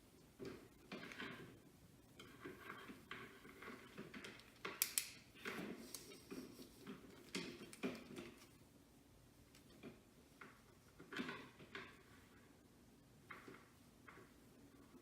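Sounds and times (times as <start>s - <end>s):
curling iron clicks: 4.6s - 5.3s.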